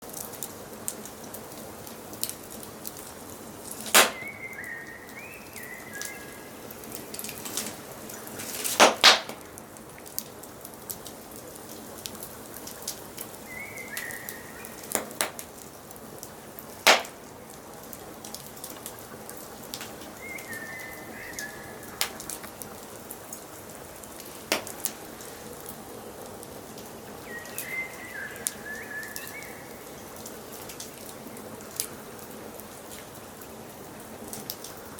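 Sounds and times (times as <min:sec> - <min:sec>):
wood fire crackling: 0:00.0 - 0:34.9
songbird chirping: 0:03.7 - 0:08.6, 0:13.4 - 0:15.4, 0:20.0 - 0:22.6, 0:26.9 - 0:30.2.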